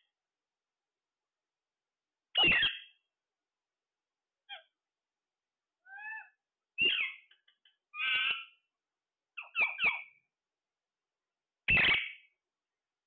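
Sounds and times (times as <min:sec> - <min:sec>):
parrot calling: 0:02.4 - 0:03.0, 0:05.8 - 0:08.6, 0:09.4 - 0:10.2, 0:11.7 - 0:12.3.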